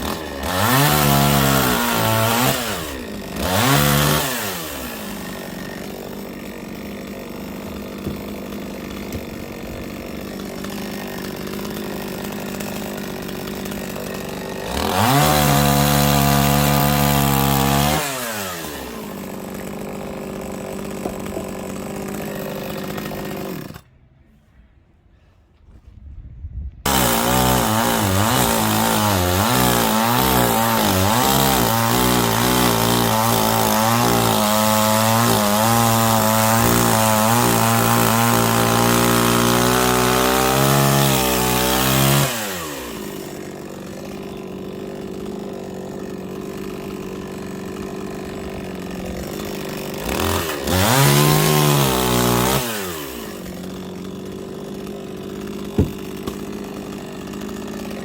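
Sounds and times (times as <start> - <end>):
chainsaw idling: 0.0 - 23.8, 26.9 - 58.0
chainsaw cutting wood: 0.0 - 23.9, 26.8 - 58.0.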